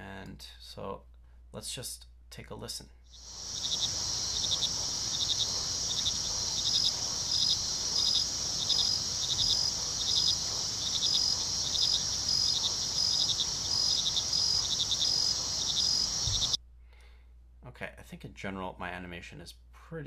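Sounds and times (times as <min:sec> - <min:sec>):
cricket chirps: 0:03.1 - 0:16.6
insect drone: 0:03.2 - 0:16.6.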